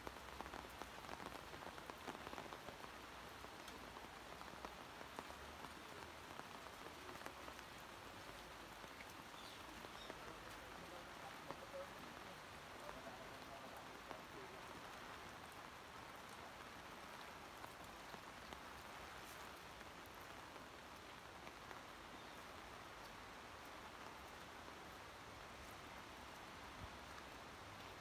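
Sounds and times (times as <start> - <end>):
heavy rain hissing: 0.0 - 28.0
light ticks of raindrops: 0.0 - 28.0.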